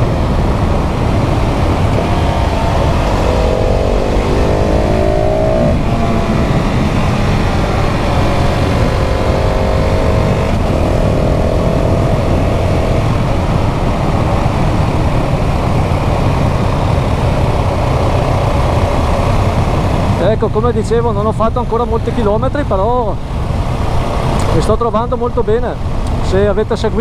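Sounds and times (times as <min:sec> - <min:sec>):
motorcycle engine accelerating: 0:00.0 - 0:20.6
wind rush: 0:00.0 - 0:20.6.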